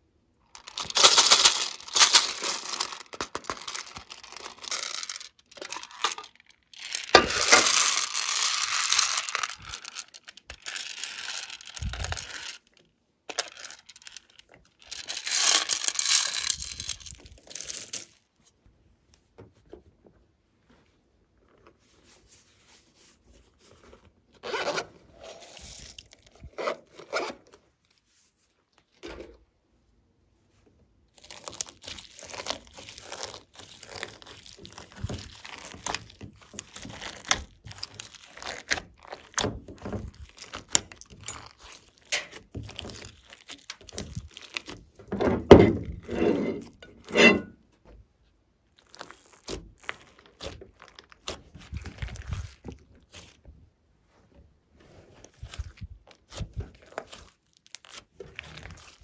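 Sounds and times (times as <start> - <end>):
slime squishing: 31.1 - 47.2, 48.7 - 53.8, 54.8 - 59.0.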